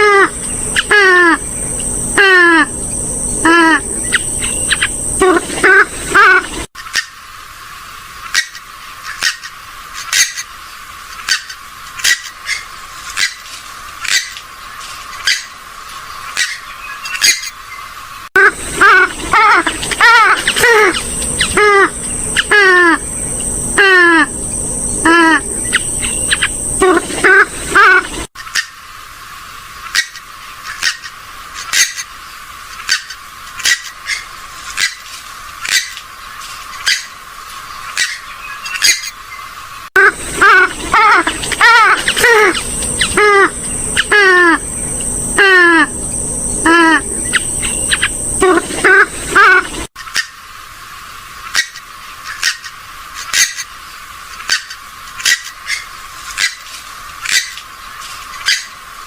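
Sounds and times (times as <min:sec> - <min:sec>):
high insect whine: 0:00.0 - 0:08.2, 0:09.6 - 0:28.3, 0:40.0 - 0:49.9
water birds calling: 0:00.0 - 0:59.0
waterbird nasal calls: 0:18.4 - 0:28.7, 0:40.0 - 0:50.3.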